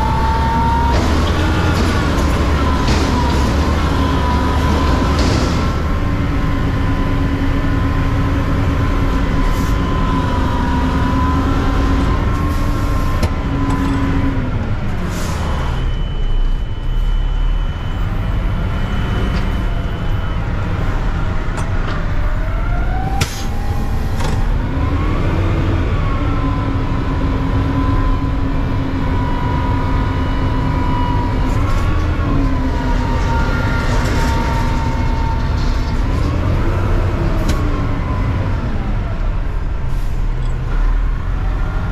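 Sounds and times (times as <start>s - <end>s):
garbage truck engine and hydraulics: 0.0s - 41.9s.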